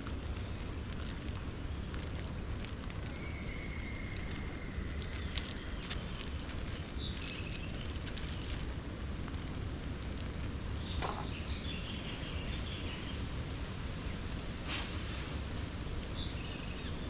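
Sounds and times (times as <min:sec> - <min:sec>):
campfire crackling: 0:00.0 - 0:12.0.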